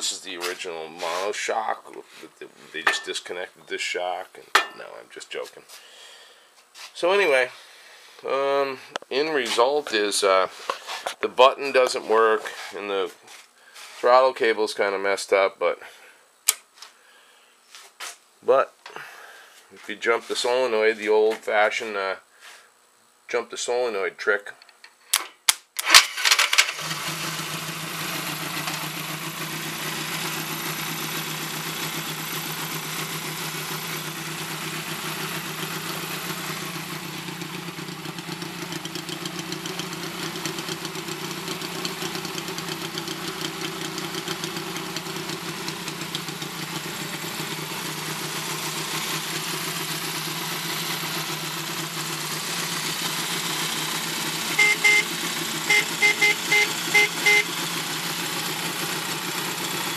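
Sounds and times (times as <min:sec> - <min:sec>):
motorcycle engine idling: 0:26.8 - 0:59.9.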